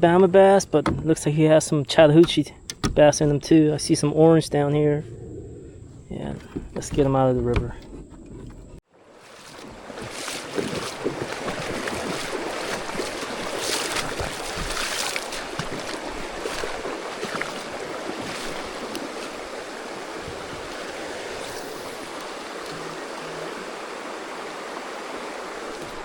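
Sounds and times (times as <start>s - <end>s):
flowing creek water: 8.8s - 26.0s.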